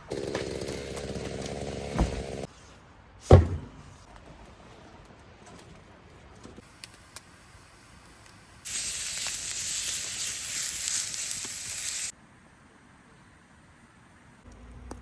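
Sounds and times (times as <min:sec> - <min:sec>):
steady hiss: 0:06.6 - 0:12.6.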